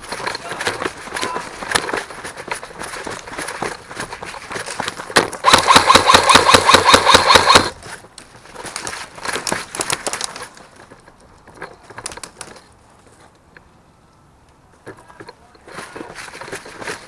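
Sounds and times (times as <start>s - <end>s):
airsoft gun firing bursts: 5.4s - 7.7s.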